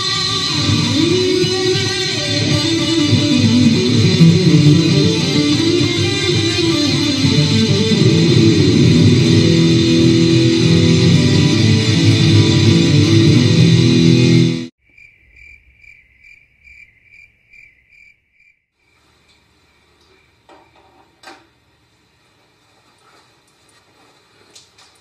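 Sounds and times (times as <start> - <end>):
loud electric guitar music: 0.0 - 14.7.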